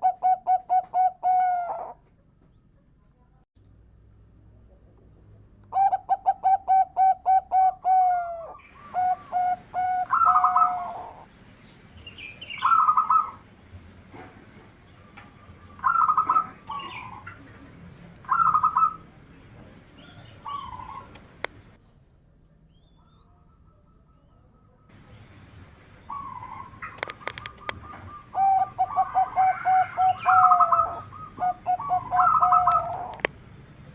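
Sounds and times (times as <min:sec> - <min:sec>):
doves cooing: 0:00.0 - 0:02.7, 0:05.7 - 0:11.3, 0:12.2 - 0:13.5, 0:14.5 - 0:21.8, 0:23.0 - 0:33.3.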